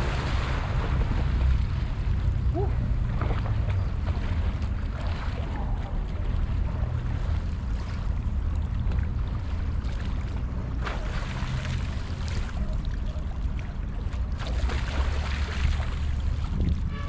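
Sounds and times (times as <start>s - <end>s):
sea waves washing: 0.0s - 8.4s
wind rumbling on microphone: 0.0s - 17.0s.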